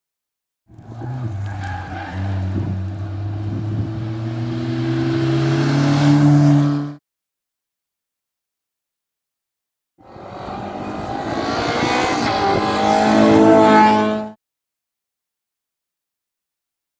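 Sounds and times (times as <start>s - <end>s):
rally car engine accelerating: 0.7s - 7.0s, 10.0s - 14.4s.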